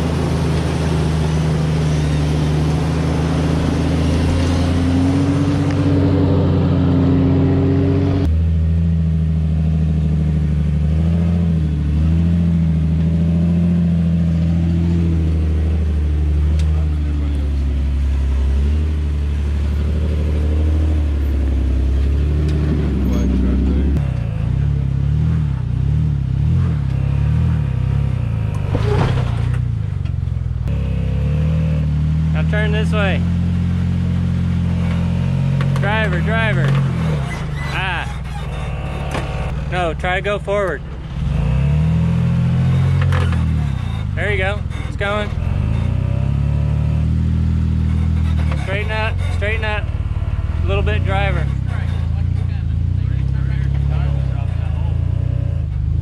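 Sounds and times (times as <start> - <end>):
engine revving under load: 0.0 - 29.9, 30.6 - 56.0.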